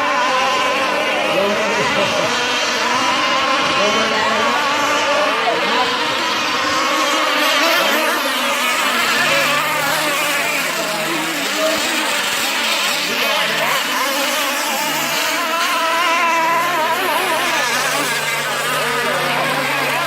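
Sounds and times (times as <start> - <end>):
high-pitched model boat engines whining: 0.0 - 20.0.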